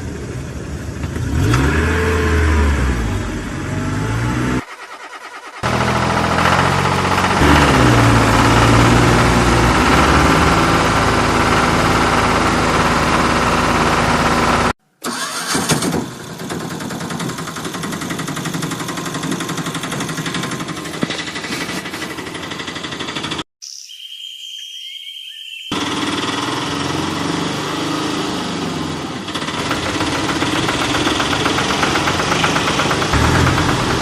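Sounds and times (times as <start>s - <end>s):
vehicle engines revving: 0.0s - 5.0s, 5.6s - 15.3s, 25.8s - 34.0s.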